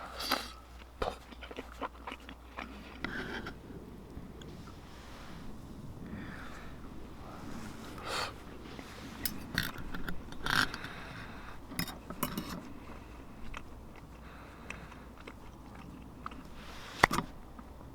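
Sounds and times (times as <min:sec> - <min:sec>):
person sniffing: 0:06.2 - 0:09.2
light clicks and clinks: 0:11.7 - 0:12.7.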